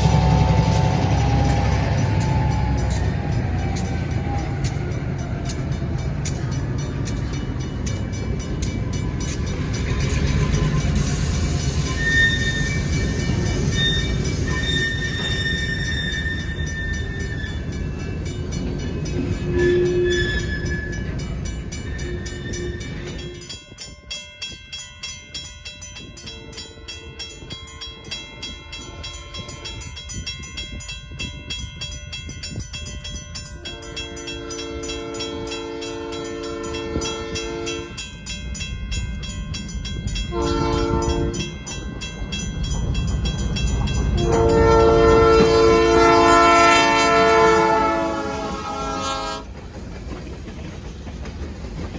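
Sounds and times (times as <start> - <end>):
locomotive air horn blasts: 0.0 - 2.9, 19.4 - 20.9, 33.8 - 38.0, 40.3 - 41.4, 44.2 - 49.5
locomotive engine and wheel rumble: 0.0 - 23.9, 27.1 - 51.9.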